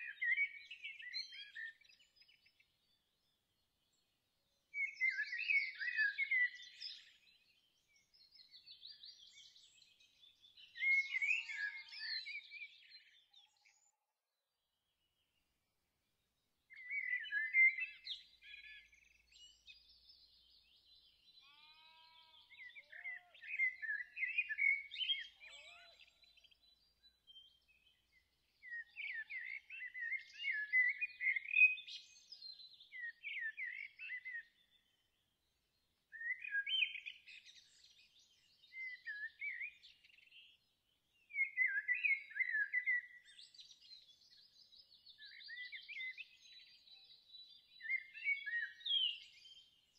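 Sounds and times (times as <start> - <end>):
songbirds chirping and trilling: 0.0 - 49.9
faint lower bird calls: 21.3 - 27.0.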